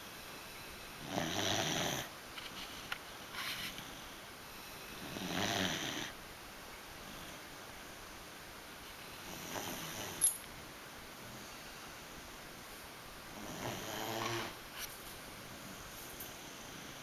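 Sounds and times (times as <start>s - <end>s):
dog snoring: 1.0s - 2.1s, 4.9s - 6.2s, 9.2s - 10.2s, 13.4s - 14.6s.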